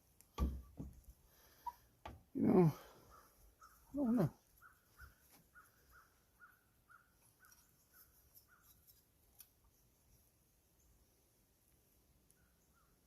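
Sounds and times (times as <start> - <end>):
faint bird calling: 2.5 - 8.8.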